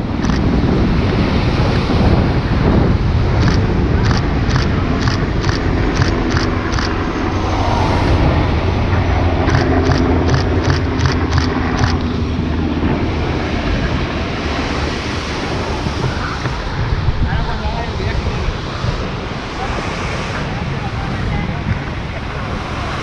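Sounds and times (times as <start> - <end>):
helicopter rotor thudding: 0.0 - 0.6, 3.3 - 7.4, 8.2 - 13.0
turbine tone: 0.0 - 23.0
wind buffeting microphone: 0.0 - 23.0.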